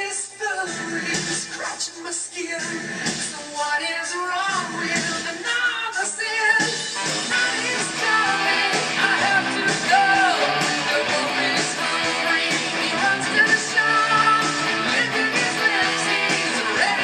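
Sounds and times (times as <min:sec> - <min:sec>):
person singing: 0:00.0 - 0:17.0
electric guitar: 0:06.6 - 0:17.0.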